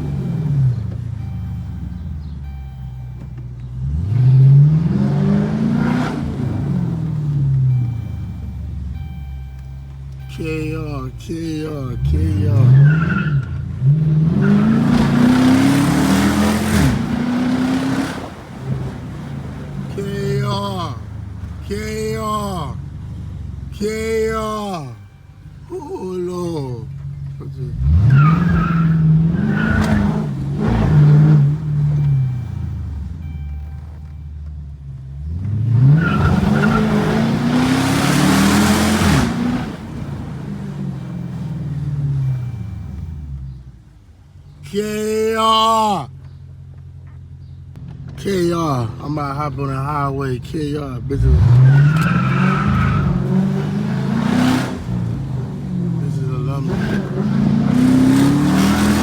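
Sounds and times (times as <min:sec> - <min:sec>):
car engine accelerating hard: 0:00.0 - 0:59.0.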